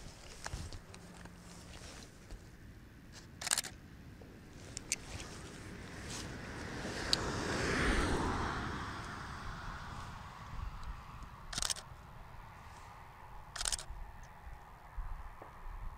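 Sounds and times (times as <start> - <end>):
camera shutter clicks: 3.4 - 3.8, 11.5 - 11.9, 13.5 - 13.9
wind rumble on microphone: 4.2 - 15.9.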